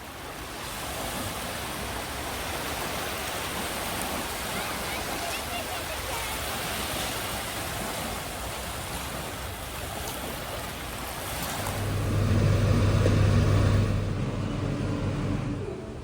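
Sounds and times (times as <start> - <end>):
steady rushing noise: 11.2 - 16.0
electric motor humming: 11.3 - 16.0.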